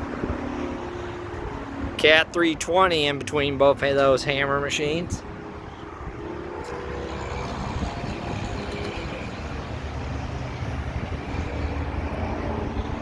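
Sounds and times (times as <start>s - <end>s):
low rumbling vehicle noise: 0.0s - 13.0s.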